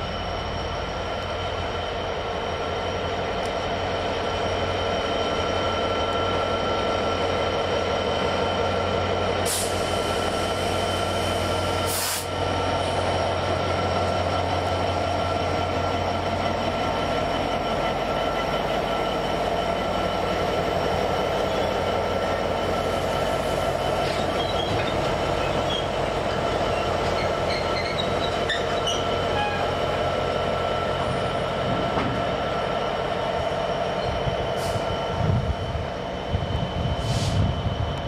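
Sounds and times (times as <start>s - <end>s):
train running with a whine: 0.0s - 38.0s
wheels squeaking: 26.7s - 29.7s.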